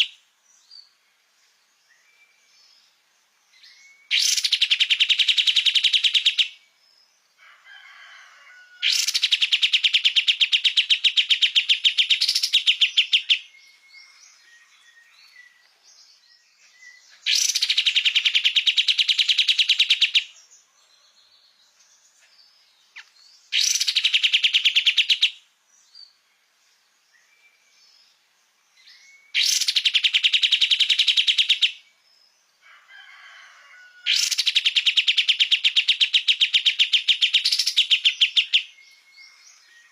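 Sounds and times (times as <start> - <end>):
faint bird chirps: 0.0 - 39.9
songbird rapid rattling trill: 8.9 - 13.5, 23.5 - 25.4, 34.2 - 38.7.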